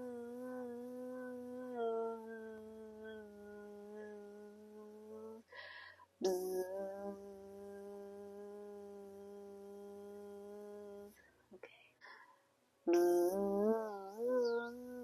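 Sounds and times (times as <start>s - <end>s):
person humming like a bee: 0.0s - 5.5s, 6.2s - 11.2s, 12.9s - 15.0s
quick breath: 5.5s - 6.2s.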